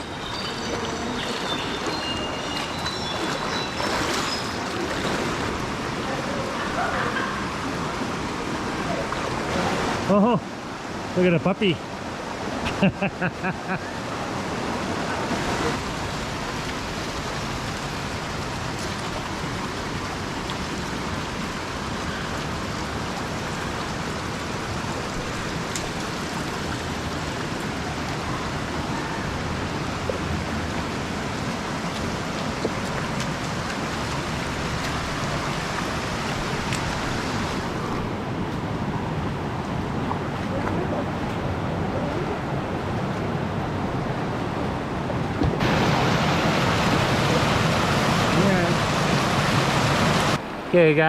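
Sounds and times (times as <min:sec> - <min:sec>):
rocky stream flowing: 0:00.0 - 0:51.0.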